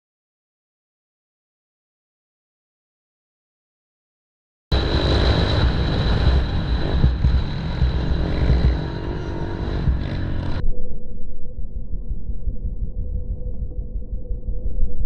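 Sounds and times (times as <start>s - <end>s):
pit bike engine running: 4.7s - 10.6s.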